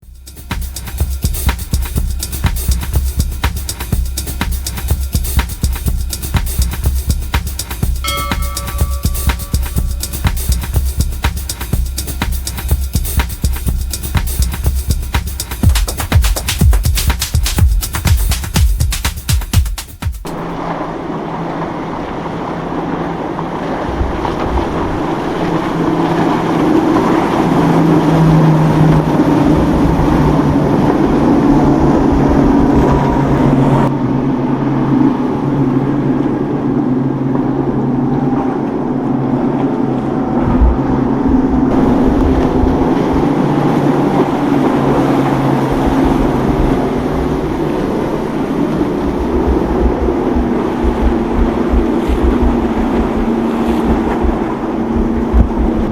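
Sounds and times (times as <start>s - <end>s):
motorboat engines running: 0.0s - 19.1s, 20.2s - 55.9s
wind rumbling on microphone: 20.3s - 55.9s.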